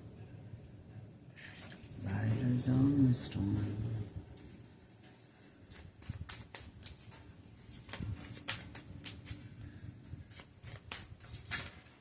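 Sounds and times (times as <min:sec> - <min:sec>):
cards being shuffled: 0:05.4 - 0:12.0.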